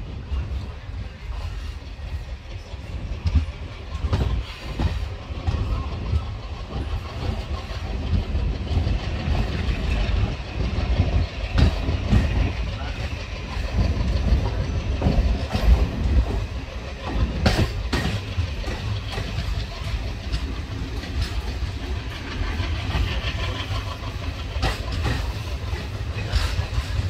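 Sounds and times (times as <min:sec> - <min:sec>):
train wheels rumbling: 0:00.0 - 0:27.0
wheels clacking over rail joints: 0:00.0 - 0:27.0.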